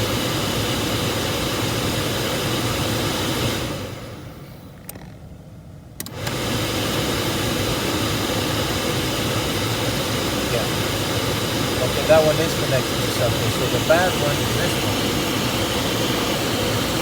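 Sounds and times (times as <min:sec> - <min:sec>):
car blower fan running: 0:00.0 - 0:17.0
clicks: 0:06.0 - 0:06.4.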